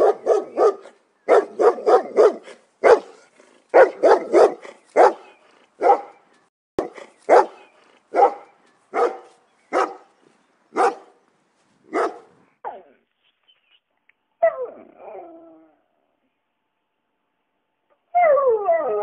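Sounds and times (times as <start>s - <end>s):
dog barking: 0.0s - 6.2s, 6.8s - 10.1s, 10.8s - 11.1s, 11.9s - 12.3s.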